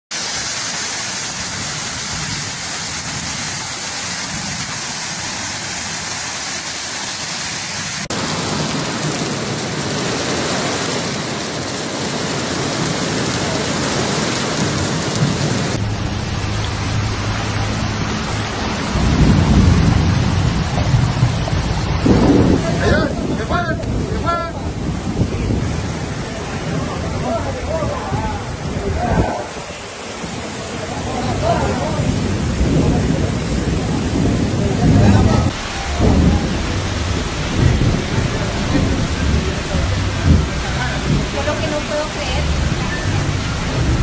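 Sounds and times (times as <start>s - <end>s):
heavy rain pouring: 0.1s - 44.0s
low rumble: 14.8s - 29.2s, 31.2s - 44.0s.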